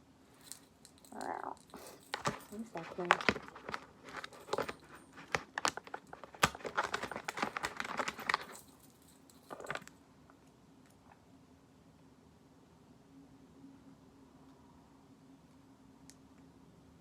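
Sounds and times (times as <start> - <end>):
packaging crinkling and clicking: 1.7 - 8.7, 9.4 - 10.0.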